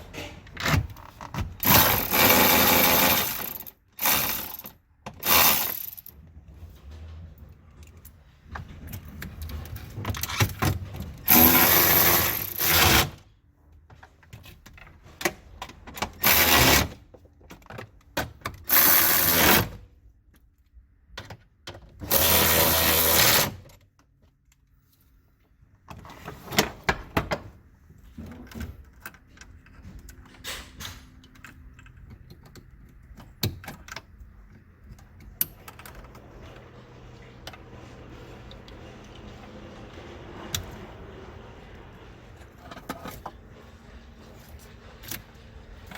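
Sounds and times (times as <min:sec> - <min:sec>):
power tool bursts: 0:01.6 - 0:04.6, 0:05.2 - 0:06.0, 0:11.3 - 0:13.2, 0:22.1 - 0:23.6.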